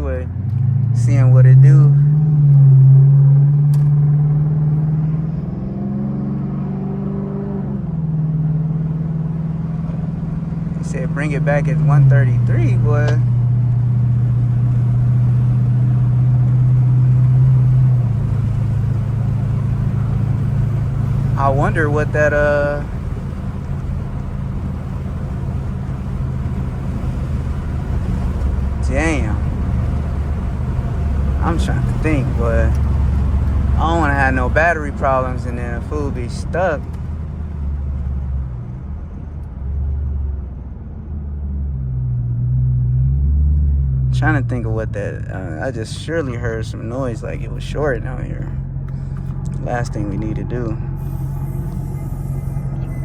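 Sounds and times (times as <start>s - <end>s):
car engine droning inside cabin: 0.0s - 53.0s
road rumble: 0.0s - 53.0s.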